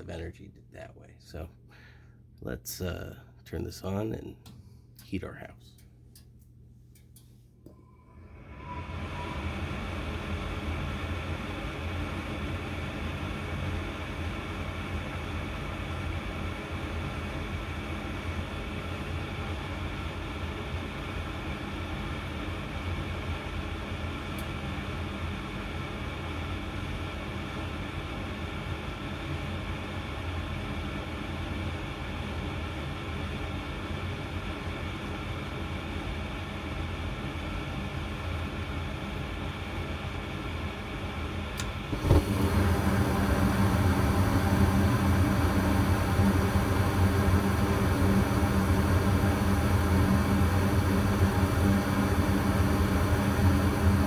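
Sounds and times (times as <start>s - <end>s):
gas furnace humming: 0.0s - 54.0s
blower fan rushing: 7.0s - 54.0s
furnace click: 41.6s - 43.1s.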